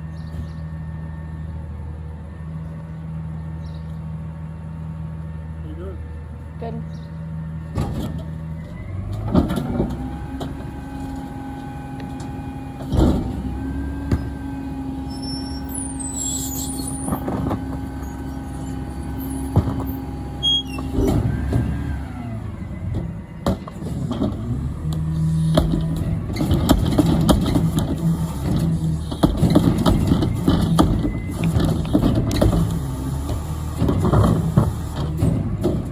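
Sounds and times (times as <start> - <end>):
garbage truck engine revving: 7.3 - 35.9.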